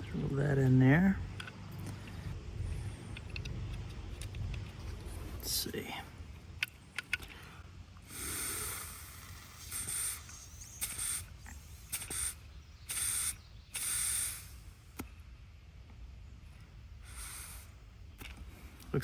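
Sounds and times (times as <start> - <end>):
hissing air blasts: 8.0 - 15.0, 17.0 - 18.0.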